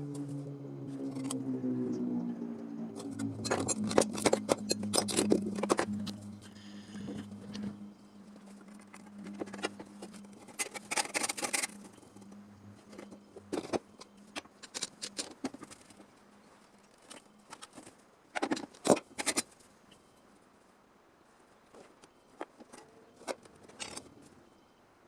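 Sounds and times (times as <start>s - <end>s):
low steady hum: 0.0s - 25.0s
tools and metal clicking: 3.0s - 6.3s.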